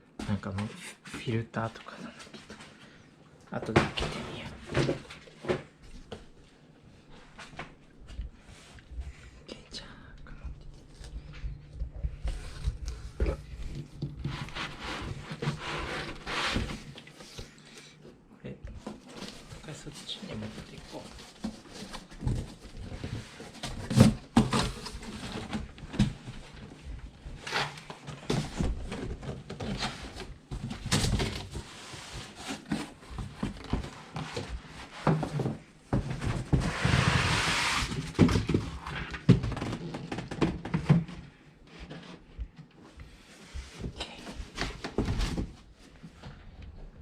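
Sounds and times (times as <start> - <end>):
thunks and knocks of handling: 20.9 - 36.7, 37.9 - 42.9.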